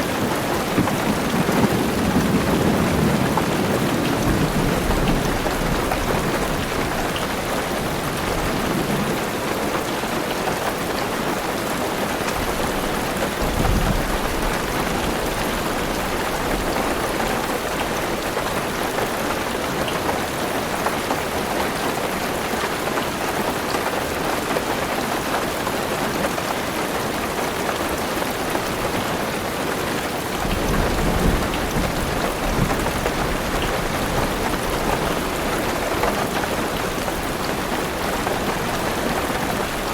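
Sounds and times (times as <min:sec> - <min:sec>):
thunder rumbling: 0:00.0 - 0:09.3
heavy rain drumming on car roof: 0:00.0 - 0:39.9.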